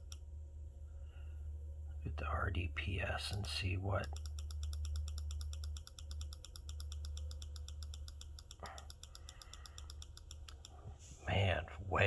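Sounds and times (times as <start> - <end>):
low hum: 0.0 - 12.0
rapid clicking: 3.3 - 10.8.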